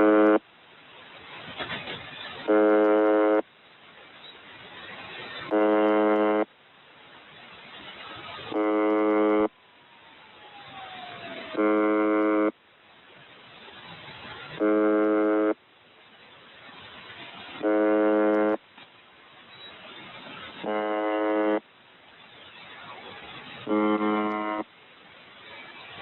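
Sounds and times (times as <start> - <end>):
harsh low radio buzz: 0.0 - 0.5, 1.6 - 3.5, 5.0 - 6.6, 8.0 - 9.6, 11.4 - 12.6, 14.2 - 15.6, 16.8 - 18.7, 20.0 - 21.7, 22.5 - 24.7
radio static hiss: 0.0 - 26.0.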